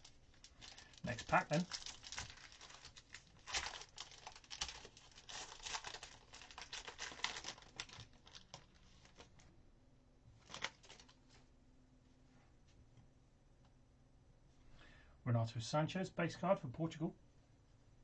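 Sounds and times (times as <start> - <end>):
card pack wrapper crinkling: 0.0 - 9.4, 10.4 - 11.2.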